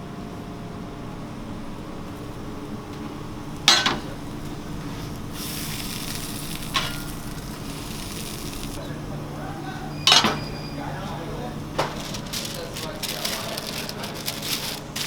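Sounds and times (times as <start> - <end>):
kitchen metalware clanking: 3.7 - 4.2, 6.7 - 7.5, 9.9 - 10.9, 11.7 - 15.0
chicken sizzling in hot oil: 5.3 - 8.8.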